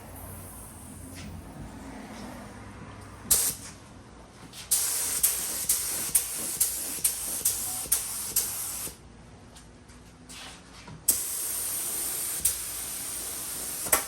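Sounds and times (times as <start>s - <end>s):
air spray gun hissing: 3.3s - 3.7s, 4.7s - 9.0s, 11.1s - 14.0s.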